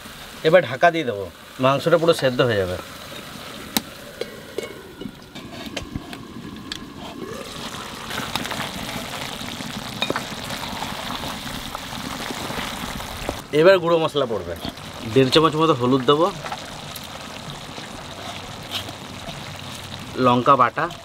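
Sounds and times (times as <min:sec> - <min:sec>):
meat sizzling in a pot: 0:00.0 - 0:21.0.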